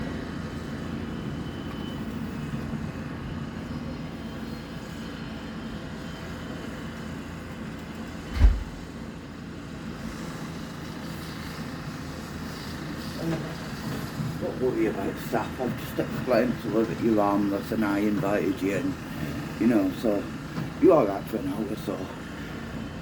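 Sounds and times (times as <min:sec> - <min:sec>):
low engine rumble: 0:00.0 - 0:10.6
deep thump: 0:08.3 - 0:08.9.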